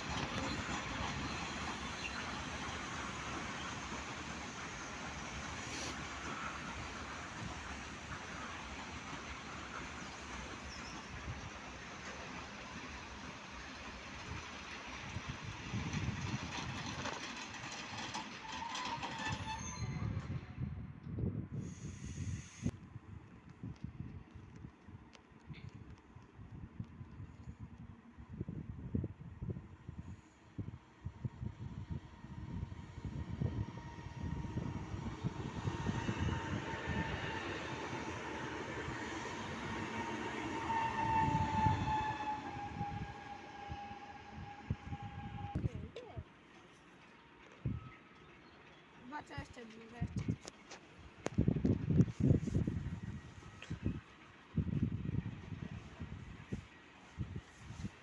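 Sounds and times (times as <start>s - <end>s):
train passing on rails: 0.0s - 58.0s
wind buffeting microphone: 14.2s - 17.2s, 20.2s - 45.9s, 51.1s - 58.0s
wheels clicking over track: 15.8s - 19.6s
electric train running: 31.3s - 45.6s
train motor whine: 31.4s - 45.7s.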